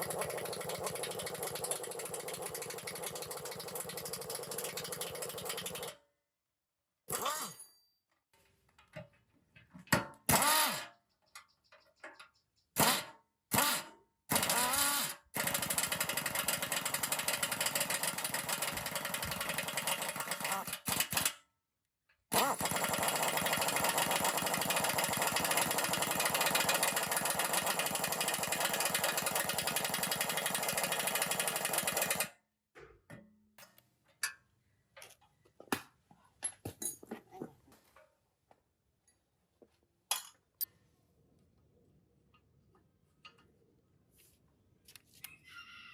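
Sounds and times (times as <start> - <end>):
power tool rattling buzz: 0.0 - 5.9, 12.8 - 21.3, 22.3 - 32.3.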